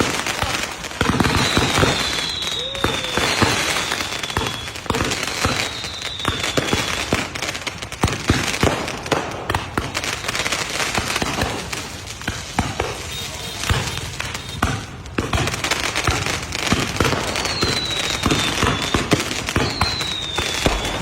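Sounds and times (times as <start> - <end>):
fireworks bangs and crackles: 0.0 - 21.0
high falling firework whistles: 1.0 - 11.3, 16.7 - 21.0.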